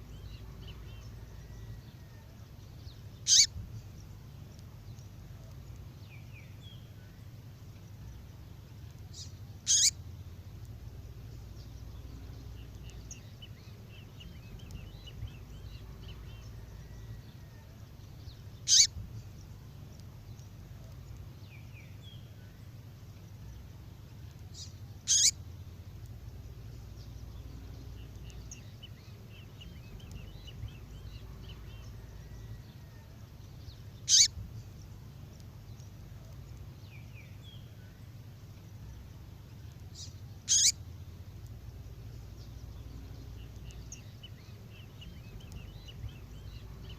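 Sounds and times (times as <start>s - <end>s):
faint bird twittering: 0.0s - 46.9s
low steady hum: 0.0s - 46.9s
bird sharp call: 3.2s - 3.5s, 9.7s - 9.9s, 18.7s - 18.9s, 25.1s - 25.3s, 34.1s - 34.3s, 40.5s - 40.8s.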